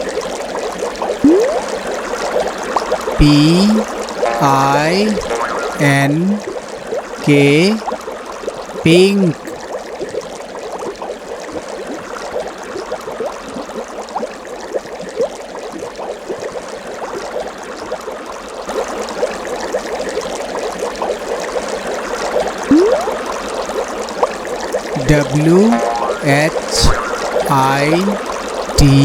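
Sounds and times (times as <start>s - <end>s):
water trickling and gurgling: 1.2s - 1.9s, 22.7s - 23.4s.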